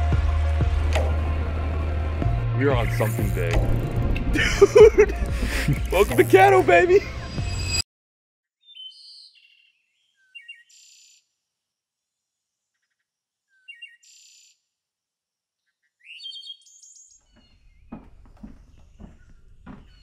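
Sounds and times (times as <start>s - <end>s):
songbird singing: 8.6s - 11.2s, 12.7s - 14.6s, 15.6s - 20.0s.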